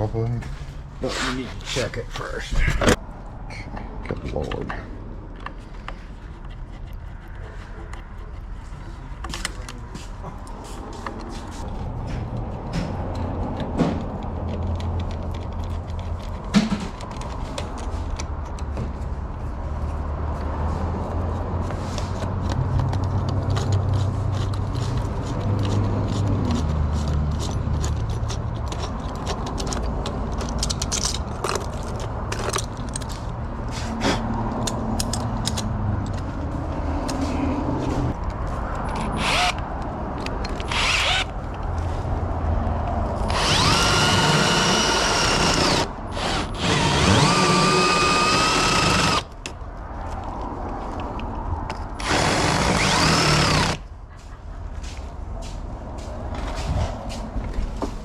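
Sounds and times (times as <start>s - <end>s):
power drill whining: 40.7s - 41.3s, 43.3s - 49.2s, 52.0s - 53.8s.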